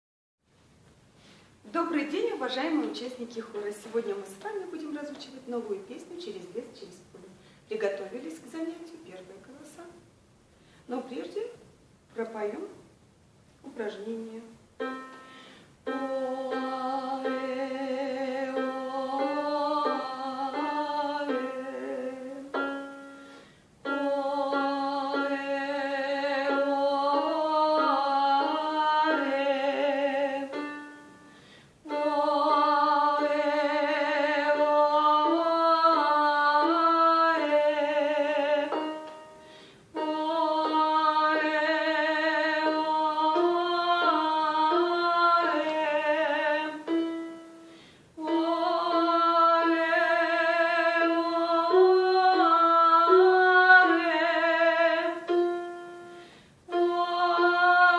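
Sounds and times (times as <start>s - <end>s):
woman singing vocal warm-up: 13.6s - 57.9s.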